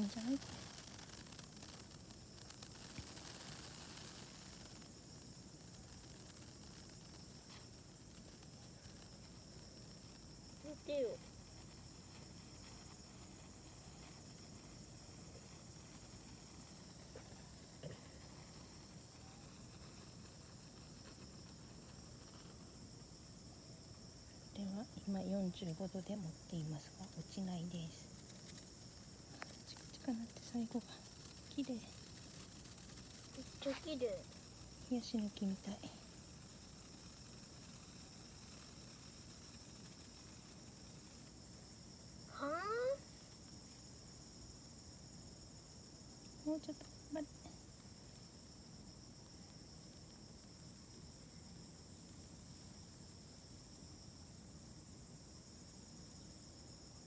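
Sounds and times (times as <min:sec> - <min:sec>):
faint ticks: 0:00.0 - 0:45.2
faint background hiss: 0:00.0 - 0:57.0
night insects trilling: 0:00.0 - 0:57.0.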